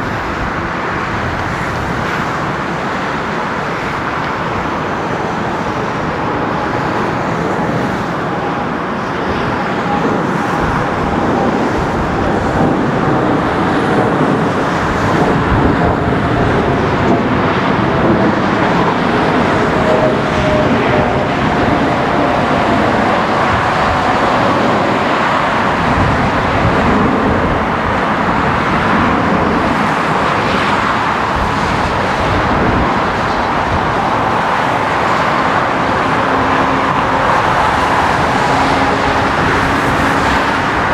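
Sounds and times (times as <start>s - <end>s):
jet engines running loudly: 0.0s - 40.9s.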